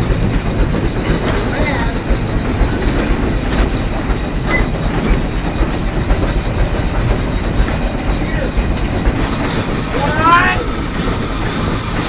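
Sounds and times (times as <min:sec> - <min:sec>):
steam locomotive rumbling: 0:00.0 - 0:12.0
wheels rattling on rails: 0:00.0 - 0:12.0.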